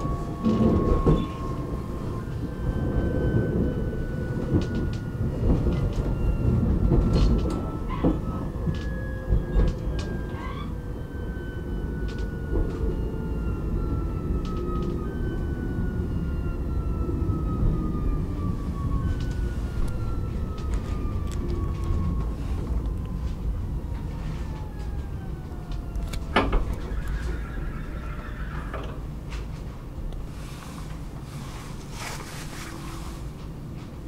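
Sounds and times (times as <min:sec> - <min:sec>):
wheels clicking over joints: 0:00.0 - 0:03.2
train wheels rumbling on rails: 0:00.0 - 0:34.0.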